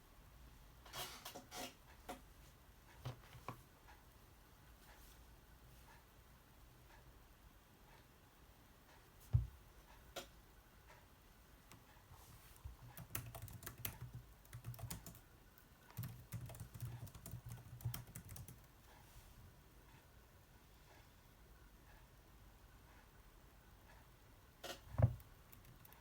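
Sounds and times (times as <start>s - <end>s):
soft thump: 9.3s - 9.6s.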